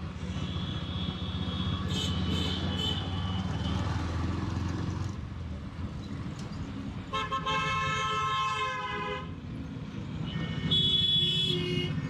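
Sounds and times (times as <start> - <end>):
engine and road rumble: 0.0 - 12.0
vehicle horns honking: 0.4 - 3.9, 10.2 - 12.0.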